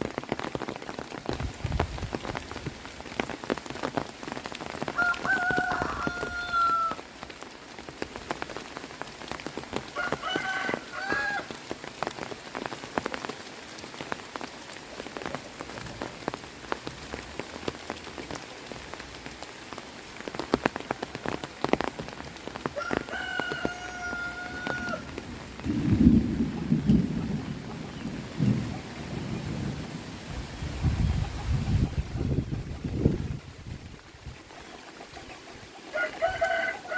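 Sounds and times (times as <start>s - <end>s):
heavy rain falling: 0.0s - 36.9s
raindrops ticking sharply: 0.0s - 36.9s
rooster crowing: 5.0s - 7.0s, 10.0s - 11.5s, 22.8s - 25.1s, 35.9s - 36.9s.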